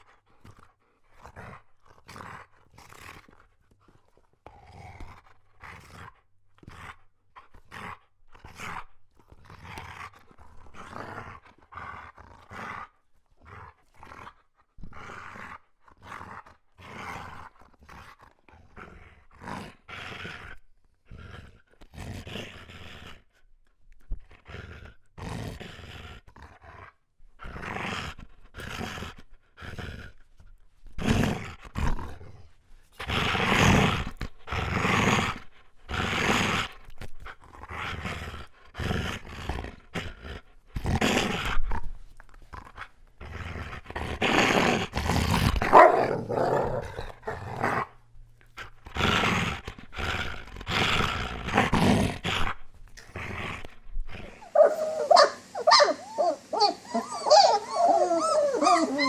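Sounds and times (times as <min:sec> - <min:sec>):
dog groaning: 0:42.6 - 0:48.0, 0:48.8 - 0:59.0.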